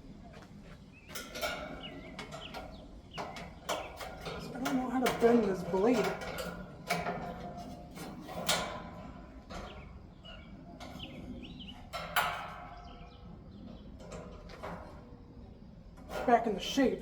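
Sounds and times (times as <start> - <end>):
knocks and clatter of fan: 1.0 - 15.1.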